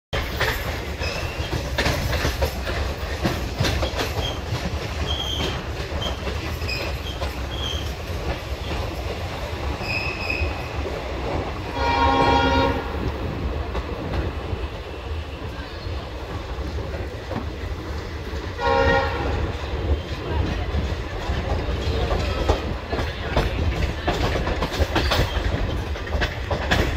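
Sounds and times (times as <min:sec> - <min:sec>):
train wheels clattering over rail joints: 0:00.2 - 0:14.8, 0:16.2 - 0:26.9
train horn: 0:11.7 - 0:13.1, 0:18.6 - 0:19.6.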